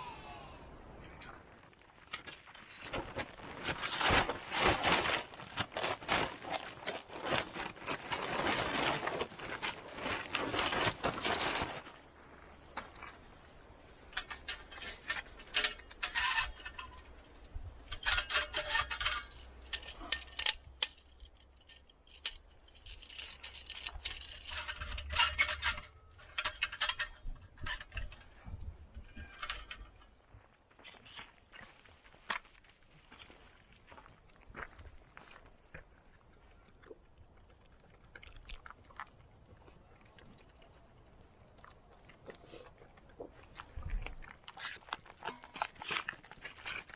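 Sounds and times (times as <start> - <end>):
small metal objects clinking: 14.2 - 28.4, 29.0 - 30.2.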